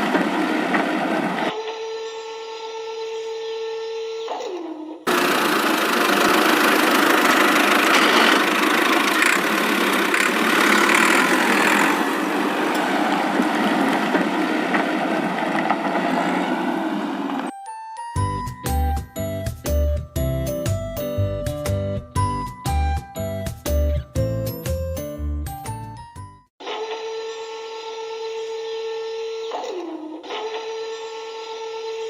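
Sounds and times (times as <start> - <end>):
small motor whining: 5.1 - 14.4
rough motor running noise: 5.1 - 16.4.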